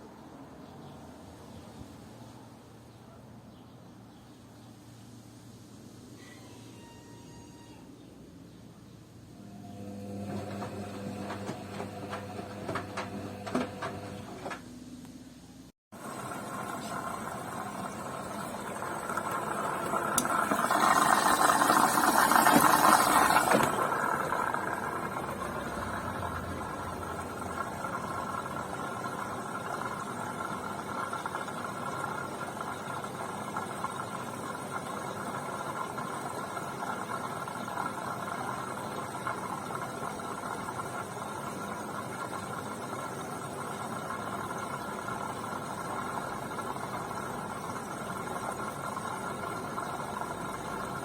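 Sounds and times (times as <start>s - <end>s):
washing machine humming: 9.2s - 14.9s, 15.9s - 51.0s.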